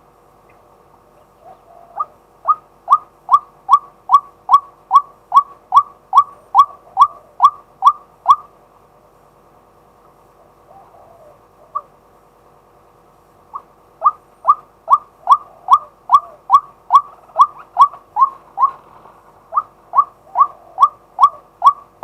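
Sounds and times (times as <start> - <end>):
bird calling rising notes: 1.2 - 8.5, 13.5 - 21.9.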